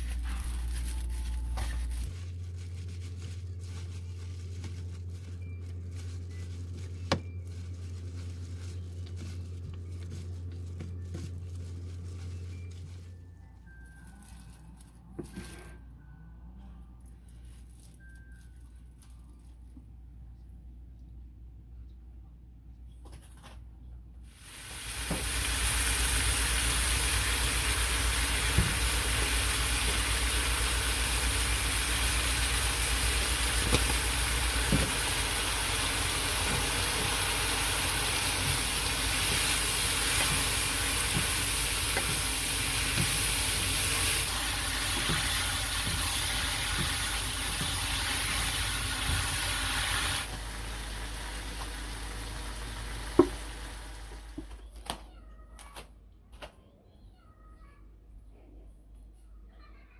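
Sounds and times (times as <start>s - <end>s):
food sizzling in a pan: 24.4s - 54.4s.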